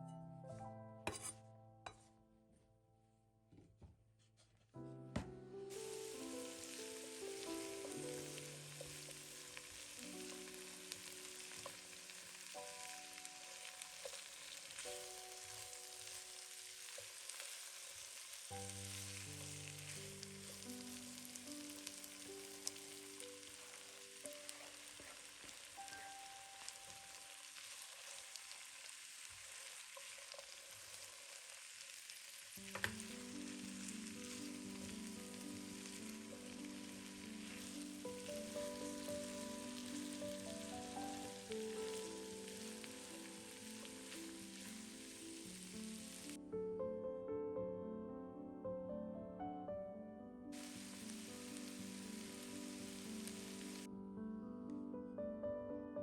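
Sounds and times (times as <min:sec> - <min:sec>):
soft background music: 0:00.0 - 0:02.7, 0:04.8 - 0:28.6, 0:32.5 - 0:56.0
knock: 0:05.1 - 0:05.4
food sizzling in a pan: 0:05.7 - 0:46.4, 0:50.5 - 0:53.9.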